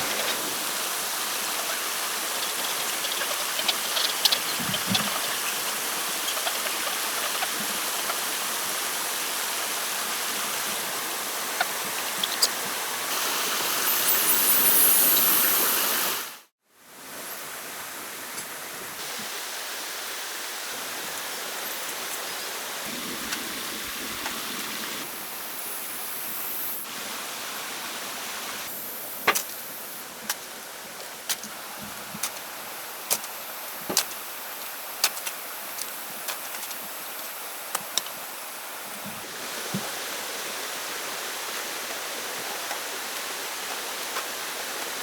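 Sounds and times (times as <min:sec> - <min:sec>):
running water: 0:00.0 - 0:16.5.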